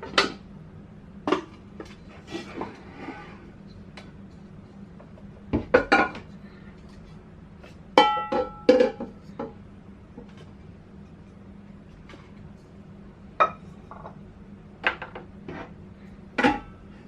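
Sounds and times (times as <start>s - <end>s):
dishes and glassware clinking: 8.0s - 9.2s.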